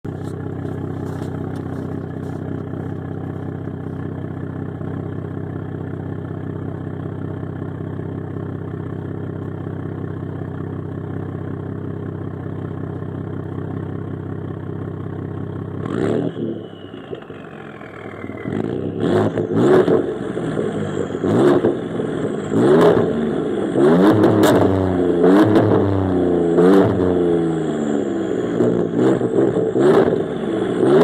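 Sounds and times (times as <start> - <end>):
truck engine idling: 0.0 - 15.9.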